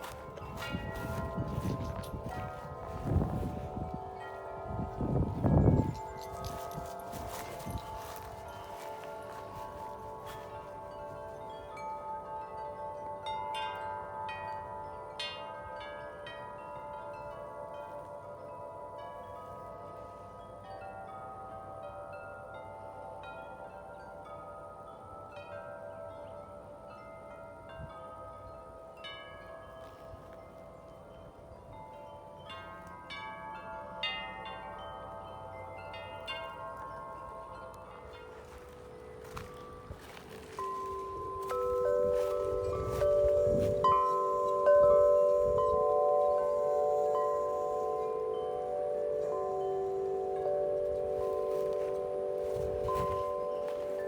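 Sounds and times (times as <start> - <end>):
gusty wind: 0.0 - 8.8, 39.3 - 46.0
deep tube wind chimes ringing: 0.0 - 54.0.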